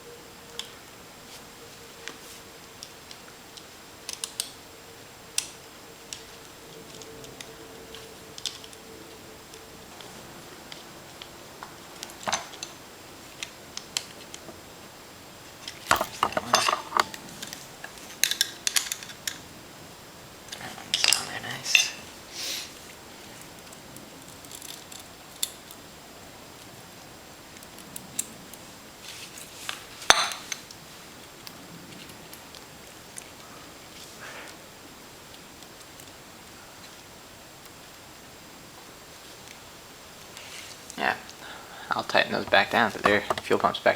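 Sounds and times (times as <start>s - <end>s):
screwdriver clinking on metal: 12.0s - 12.8s, 15.6s - 19.4s, 42.4s - 43.6s.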